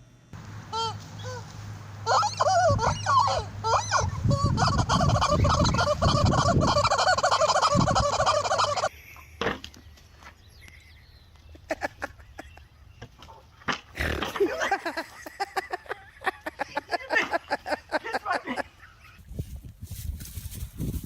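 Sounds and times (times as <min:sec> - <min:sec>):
turkeys gobbling: 0:00.7 - 0:08.9.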